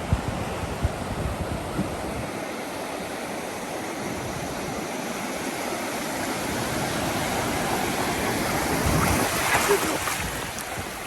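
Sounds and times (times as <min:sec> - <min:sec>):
waves breaking: 0:00.0 - 0:11.0.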